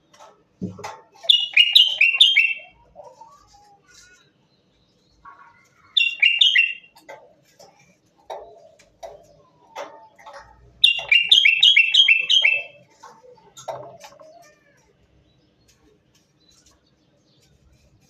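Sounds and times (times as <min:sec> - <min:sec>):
bird whistled notes: 0:01.4 - 0:02.6, 0:06.0 - 0:06.9, 0:10.8 - 0:12.8.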